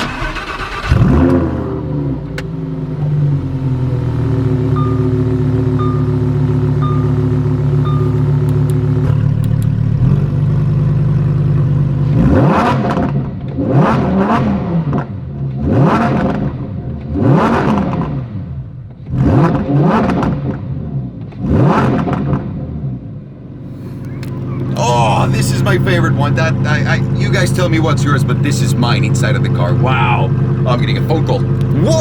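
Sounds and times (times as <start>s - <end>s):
sports car engine revving: 0.0s - 32.0s
short beeps: 4.7s - 8.5s.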